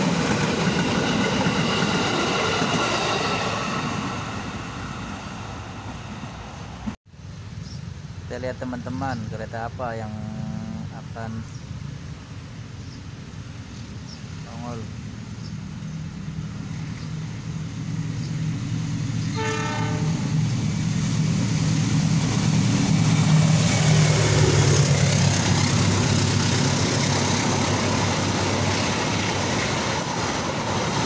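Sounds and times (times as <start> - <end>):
train wheels rumbling on rails: 0.0 - 7.0, 13.1 - 31.0
diesel locomotive engine drone: 0.0 - 31.0
locomotive horn blast: 19.3 - 20.4.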